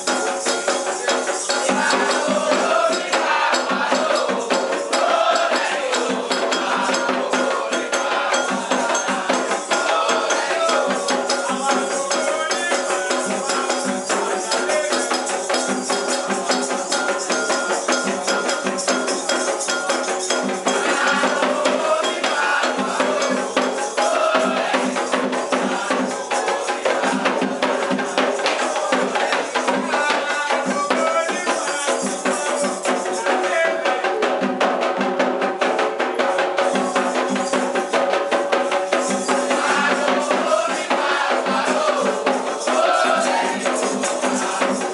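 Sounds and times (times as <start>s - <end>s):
rattles and shakers: 0.0s - 6.8s, 8.1s - 33.4s, 36.3s - 44.9s
hand percussion: 0.0s - 44.9s
voices singing: 0.0s - 44.9s.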